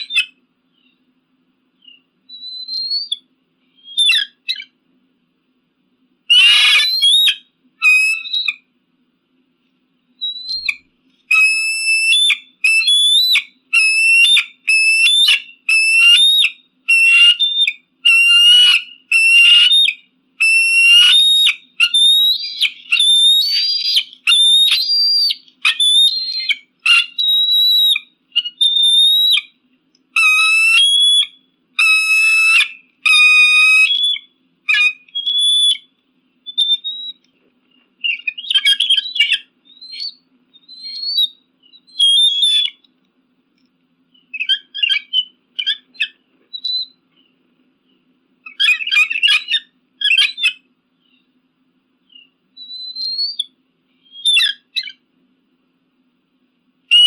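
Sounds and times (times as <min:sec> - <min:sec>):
eagle calling with whistled notes: 0:00.0 - 0:01.0, 0:01.8 - 0:04.8, 0:06.3 - 0:08.7, 0:10.2 - 0:42.9, 0:44.1 - 0:51.3, 0:52.0 - 0:55.0.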